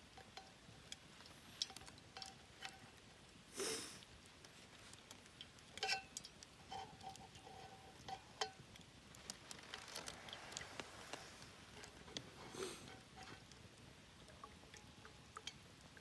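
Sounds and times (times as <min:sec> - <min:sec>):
faint metallic clinks: 0:05.4 - 0:08.6.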